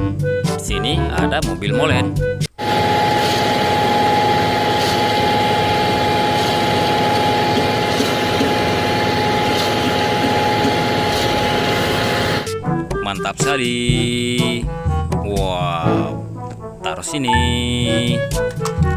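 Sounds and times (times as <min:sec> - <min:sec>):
constant whine: 0:02.6 - 0:12.5
truck engine idling: 0:02.6 - 0:12.5.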